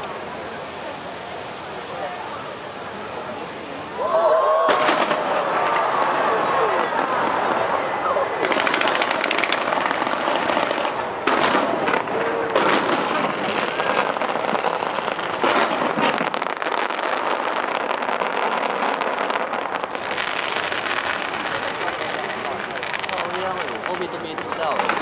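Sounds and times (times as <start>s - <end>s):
fireworks crackling: 0.0s - 25.0s
fireworks sharp bangs: 4.6s - 25.0s.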